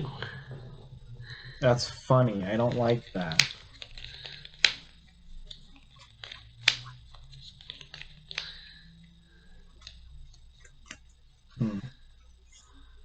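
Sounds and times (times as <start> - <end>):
cards clicking and snapping: 2.6 - 8.9, 9.7 - 11.2
low voice: 11.6 - 11.9.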